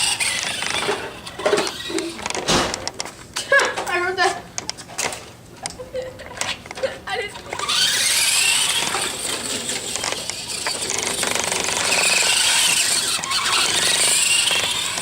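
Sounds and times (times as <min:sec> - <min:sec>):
electric toy car motor whining: 0:00.0 - 0:02.3, 0:07.5 - 0:15.0.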